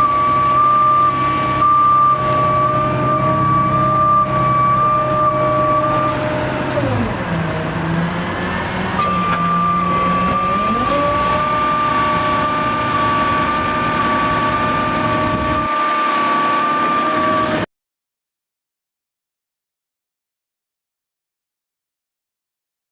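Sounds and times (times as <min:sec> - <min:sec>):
truck engine and hydraulic pump whine: 0:00.0 - 0:17.7.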